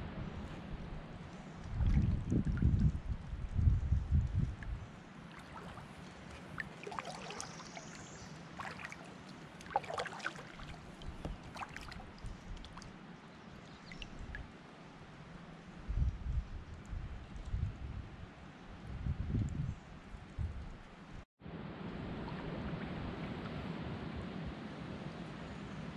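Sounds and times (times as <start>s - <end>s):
paddle splashes and drips: 1.2s - 3.6s, 4.2s - 14.6s.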